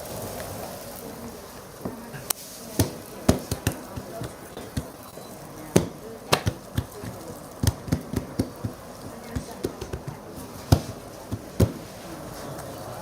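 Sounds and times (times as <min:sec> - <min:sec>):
cleaver chopping on wooden board: 0:05.8 - 0:11.8.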